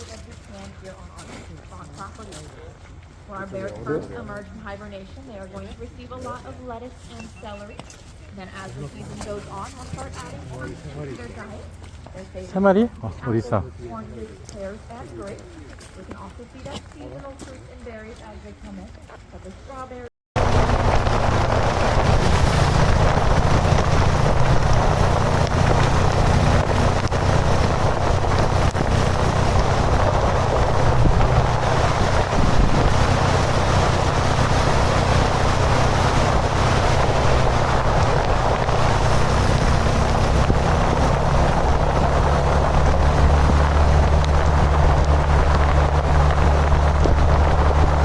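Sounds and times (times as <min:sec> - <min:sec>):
motorcycle engine running: 0:20.4 - 0:48.0
wind rushing over microphone: 0:20.4 - 0:48.0.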